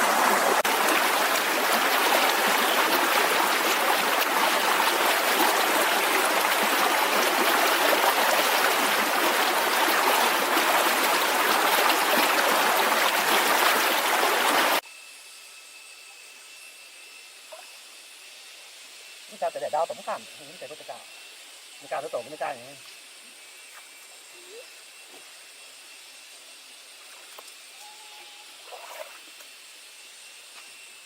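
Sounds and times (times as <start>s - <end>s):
water rushing: 0.0s - 14.8s
faint high tone: 27.8s - 28.6s.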